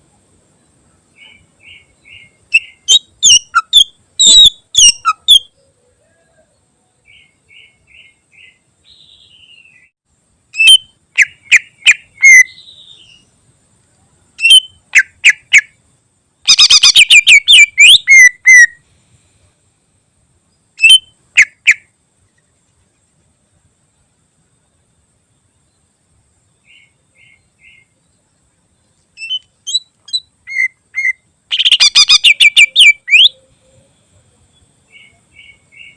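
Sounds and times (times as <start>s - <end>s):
bird singing whistled notes: 1.1s - 10.0s, 10.6s - 13.3s, 14.4s - 15.7s, 16.5s - 18.8s, 20.8s - 21.8s, 29.1s - 35.9s.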